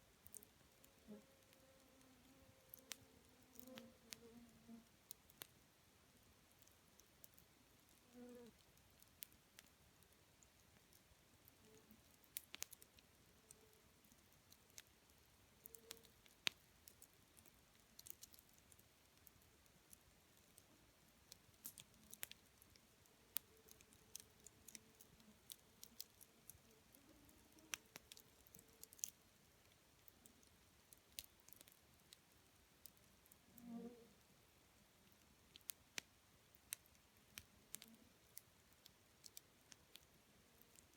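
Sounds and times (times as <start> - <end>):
campfire crackling and popping: 2.7 - 4.2, 4.9 - 33.4, 35.0 - 40.9.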